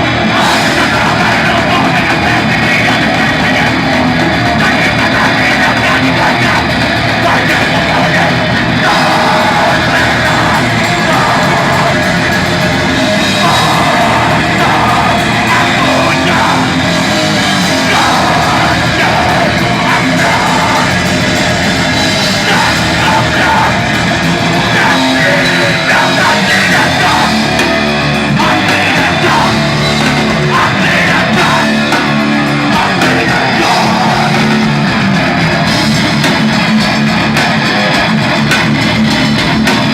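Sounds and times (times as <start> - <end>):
electric guitar: 0.0 - 39.9
rock band playing live: 0.0 - 39.9.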